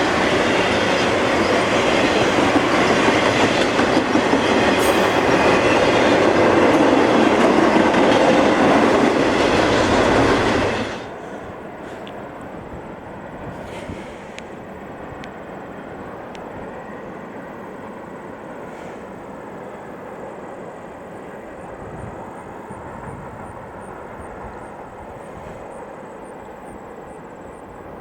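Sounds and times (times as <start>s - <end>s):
train rolling on rails: 0.0s - 28.0s
faint click: 13.7s - 14.5s.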